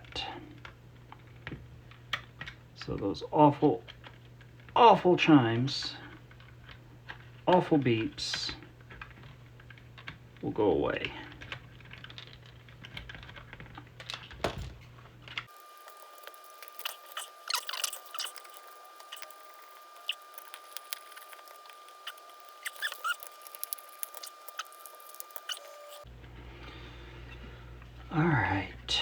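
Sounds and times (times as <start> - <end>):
plastic housing clicks and scrapes: 15.3 - 26.1.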